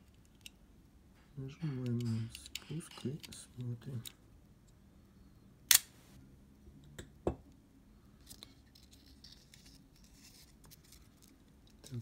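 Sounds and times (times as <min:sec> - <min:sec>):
camera shutter snap: 0:05.7 - 0:06.0.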